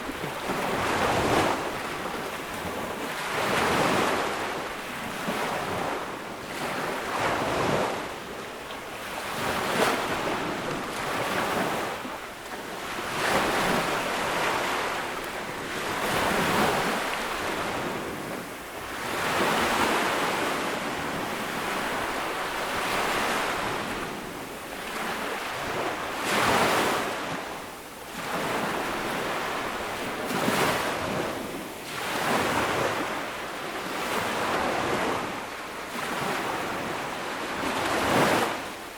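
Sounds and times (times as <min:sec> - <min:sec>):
waves breaking on beach: 0:00.0 - 0:38.9.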